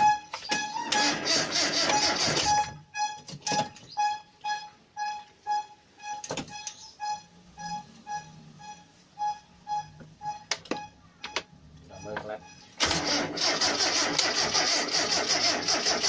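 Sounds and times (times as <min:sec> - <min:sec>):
short electronic beeps: 0:01.8 - 0:12.8.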